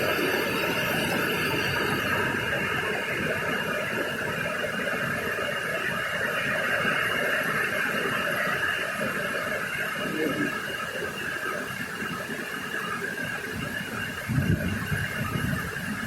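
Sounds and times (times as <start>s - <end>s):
strong storm wind: 13.6s - 16.0s.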